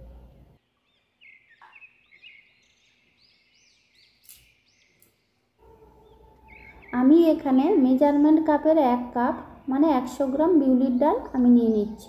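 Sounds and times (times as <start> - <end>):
faint bird chirps: 0.6 - 7.4.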